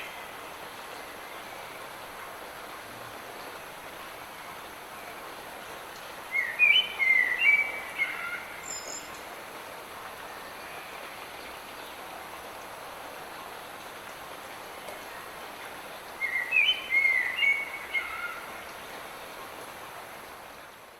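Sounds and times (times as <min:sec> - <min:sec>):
light rain falling: 0:00.0 - 0:20.9
songbird singing: 0:06.3 - 0:09.3, 0:16.2 - 0:18.5.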